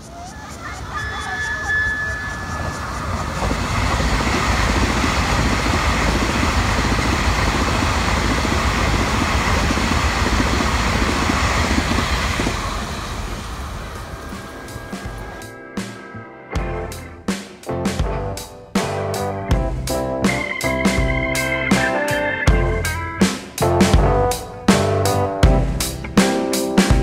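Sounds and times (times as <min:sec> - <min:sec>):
electric train passing: 0:00.0 - 0:15.9.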